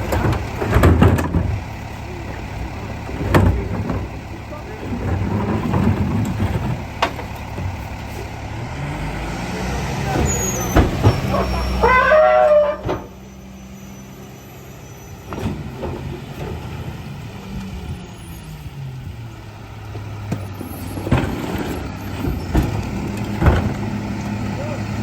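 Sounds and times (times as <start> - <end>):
garbage truck engine running: 0.0 - 25.0
air brake squeal: 10.2 - 15.5.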